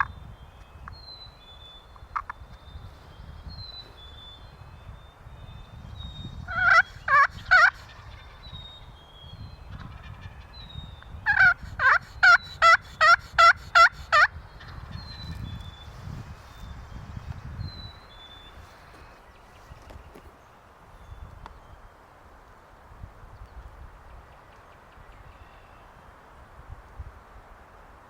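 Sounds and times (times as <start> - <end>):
faint songbird chirps: 0.0 - 13.1, 14.1 - 22.0, 23.3 - 26.1
turkey call yelps: 6.5 - 8.4, 11.2 - 14.4.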